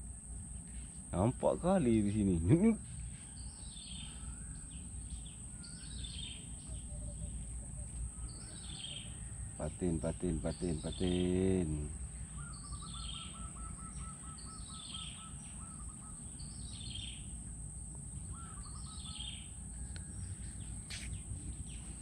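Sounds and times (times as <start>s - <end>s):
bird rapid trill: 8.2s - 17.5s, 18.2s - 22.0s.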